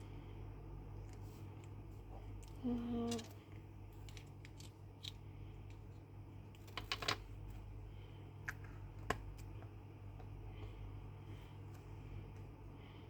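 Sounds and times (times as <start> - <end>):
plastic craft pieces clicking: 4.0 - 5.2, 6.6 - 7.2.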